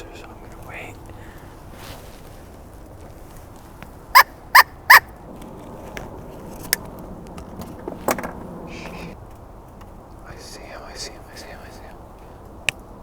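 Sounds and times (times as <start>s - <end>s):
faint clicks: 12.1s - 12.9s.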